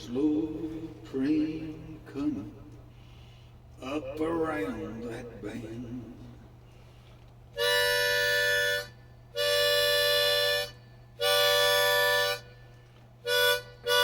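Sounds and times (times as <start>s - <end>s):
harmonica chords: 7.5s - 14.0s.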